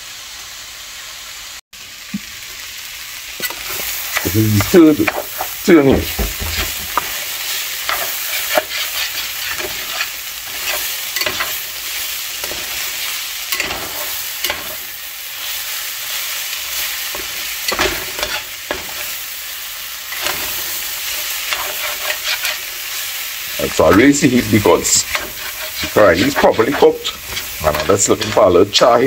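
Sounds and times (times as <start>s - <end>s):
vegetables sizzling in a pot: 0.0s - 29.0s
metal spoon scraping a pot: 6.4s - 11.7s, 17.7s - 19.0s, 21.2s - 22.7s, 23.8s - 28.6s.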